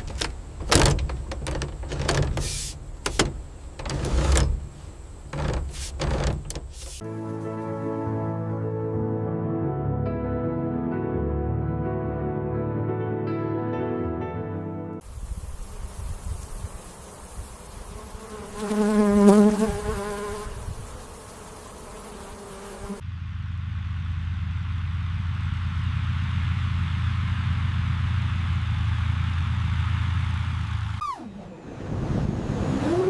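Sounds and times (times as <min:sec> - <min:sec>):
outdoor ambience hiss: 0:00.0 - 0:07.8, 0:15.0 - 0:33.0
flying insect buzzing: 0:02.3 - 0:07.0, 0:15.0 - 0:23.0
steady low hum: 0:22.8 - 0:32.7.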